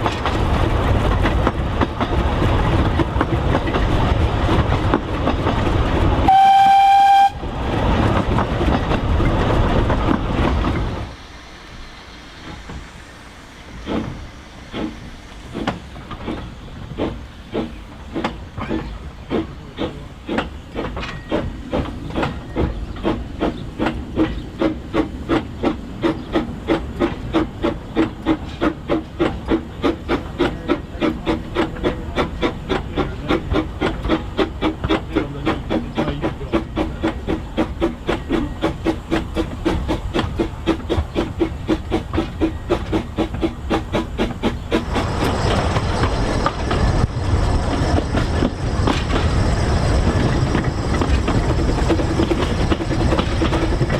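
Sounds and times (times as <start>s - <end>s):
rushing noise: 0.0s - 26.0s, 44.1s - 53.9s
steam locomotive exhaust beats: 0.0s - 53.9s.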